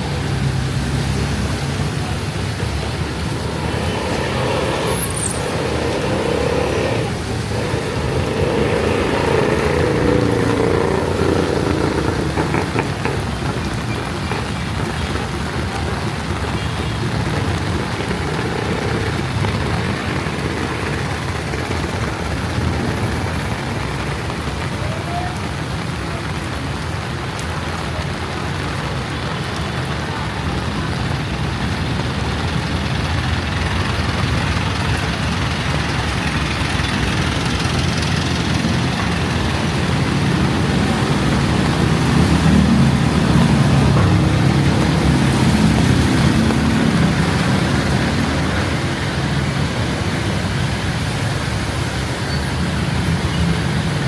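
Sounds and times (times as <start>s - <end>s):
heavy rain on street: 0.0s - 54.0s
motor traffic: 0.0s - 54.0s
vehicle engine rumble: 0.0s - 54.0s.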